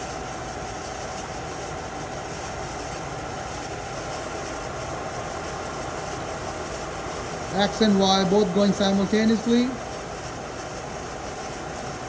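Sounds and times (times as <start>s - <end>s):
faint machine whine: 0.0s - 12.0s
milling machine hum: 0.0s - 12.0s.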